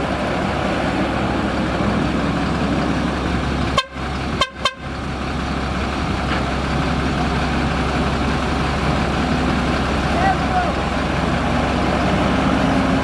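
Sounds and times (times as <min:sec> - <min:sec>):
heavy diesel engine drone: 0:00.0 - 0:13.0.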